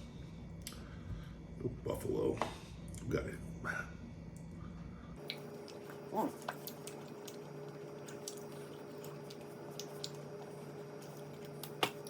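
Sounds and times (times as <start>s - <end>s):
steady electrical hum: 0.0s - 12.0s
wet chewing: 5.2s - 12.0s.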